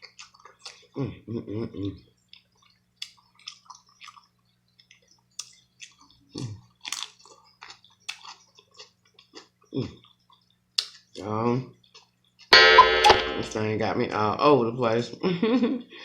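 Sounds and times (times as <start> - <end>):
person chewing food: 0.0 - 1.0, 2.1 - 11.2, 11.8 - 12.5.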